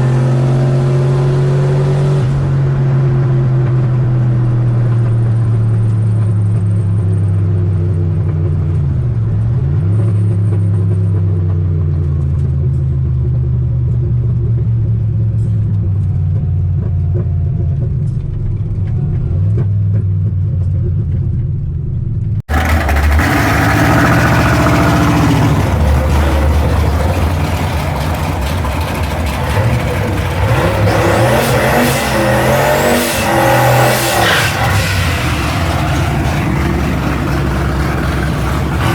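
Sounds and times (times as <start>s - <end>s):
harsh engine revving: 0.0s - 6.2s, 22.4s - 38.9s
car engine rumbling at low revs: 0.0s - 38.9s.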